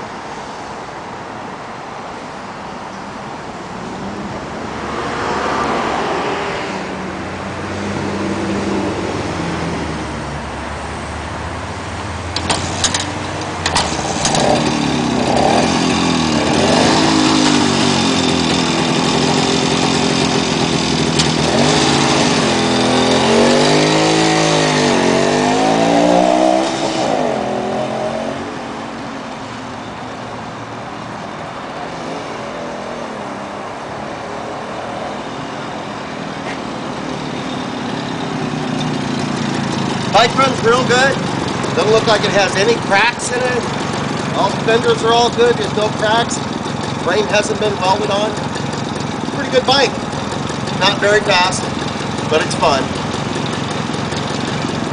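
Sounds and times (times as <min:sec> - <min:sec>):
motorcycle engine revving: 0:12.2 - 0:28.7, 0:36.7 - 0:54.9.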